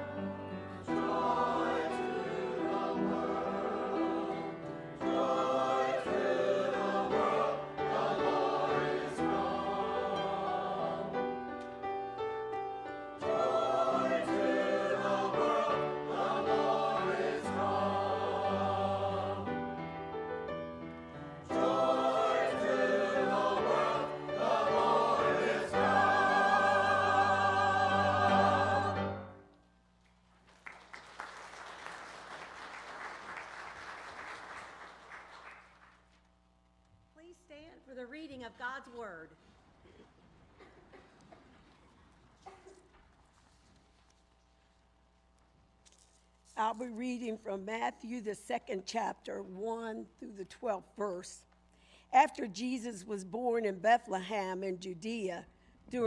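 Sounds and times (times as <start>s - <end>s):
choir singing: 0.0s - 20.5s, 21.1s - 29.4s.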